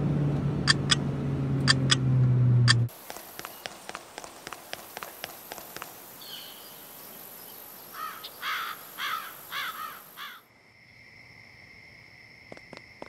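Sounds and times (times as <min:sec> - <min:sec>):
small songbird chirping: 0:03.0 - 0:10.0.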